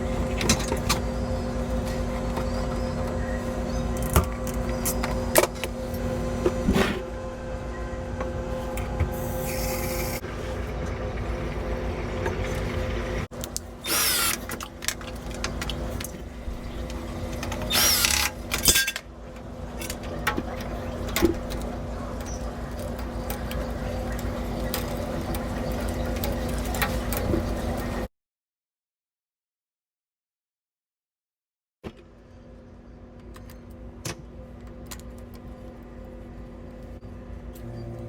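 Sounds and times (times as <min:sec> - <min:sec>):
low hum: 0:00.0 - 0:13.8, 0:35.2 - 0:38.0
power drill whirring: 0:13.8 - 0:14.5, 0:17.7 - 0:18.3.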